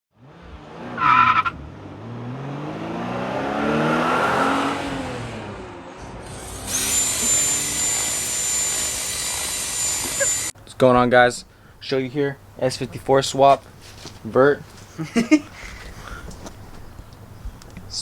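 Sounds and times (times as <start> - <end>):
car engine revving: 0.2 - 7.4
thin high whine: 6.4 - 10.5
short high squeal: 9.8 - 10.5.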